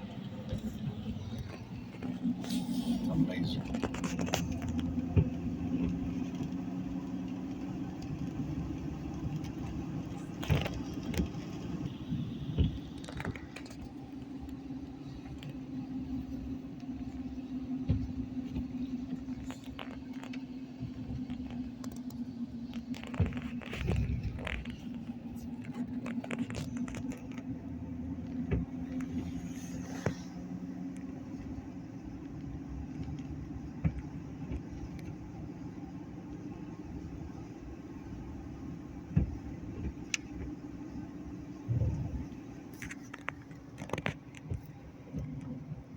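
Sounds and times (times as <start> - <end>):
car engine and road noise: 0.0 - 45.9
light clicks and taps: 28.1 - 45.6.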